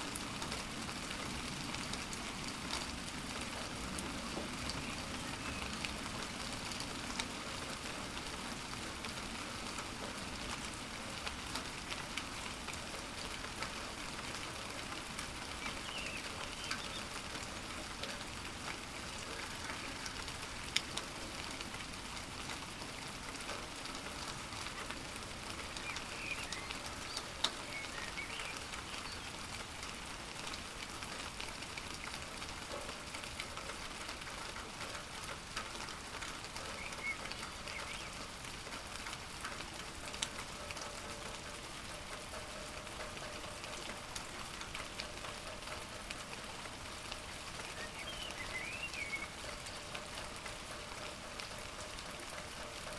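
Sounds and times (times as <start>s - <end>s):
rain drops pattering: 0.0s - 52.9s.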